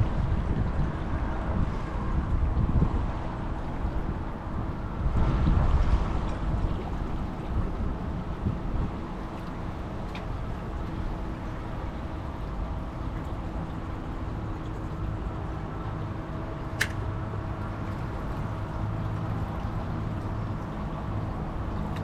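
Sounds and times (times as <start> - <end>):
water noise: 0.0 - 22.0
wind: 0.0 - 22.0
sharp click: 16.8 - 17.0.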